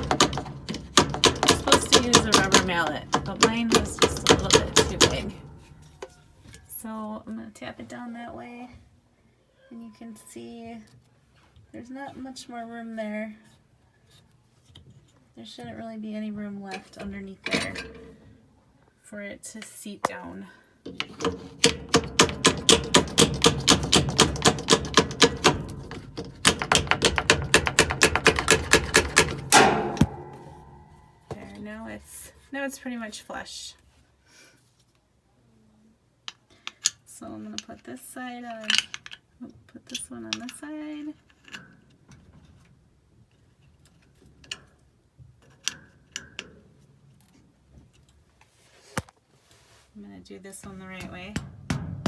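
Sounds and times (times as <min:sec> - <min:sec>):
rapid hard tapping on metal: 0:00.0 - 0:06.2, 0:20.9 - 0:31.5, 0:50.8 - 0:52.0
small parts clicking and knocking: 0:00.0 - 0:06.7, 0:20.8 - 0:31.6, 0:38.4 - 0:39.3.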